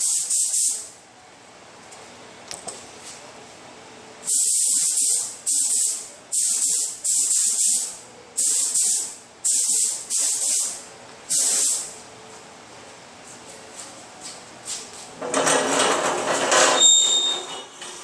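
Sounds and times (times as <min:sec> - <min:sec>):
paint spray gun hissing: 0:00.0 - 0:00.8, 0:04.3 - 0:11.9.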